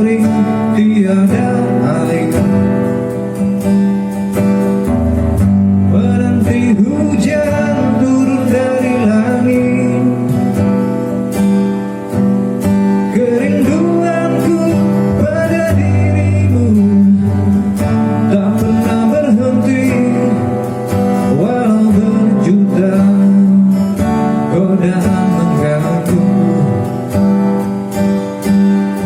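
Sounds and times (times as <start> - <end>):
person singing: 0.0 - 3.4, 5.8 - 10.7, 13.0 - 27.1
acoustic guitar strumming: 0.0 - 29.0.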